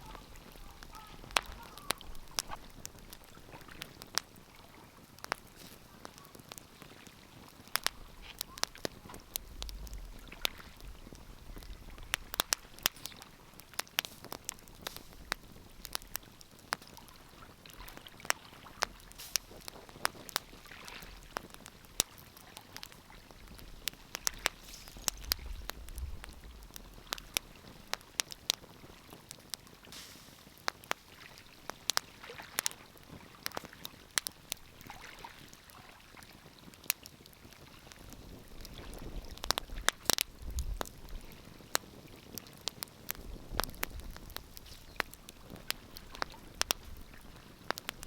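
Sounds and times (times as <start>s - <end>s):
wood fire crackling: 0.0s - 48.0s
low rumble: 25.0s - 27.4s.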